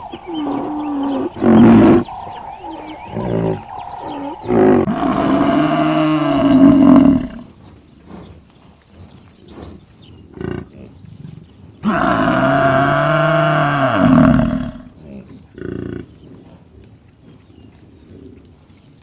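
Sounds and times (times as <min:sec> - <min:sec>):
large animal calling: 0:00.0 - 0:07.5, 0:11.8 - 0:14.9.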